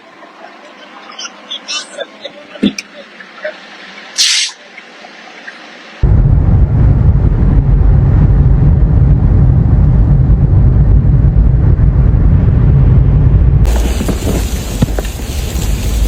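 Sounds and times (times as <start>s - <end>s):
moving vehicle low rumble: 0.0s - 16.0s.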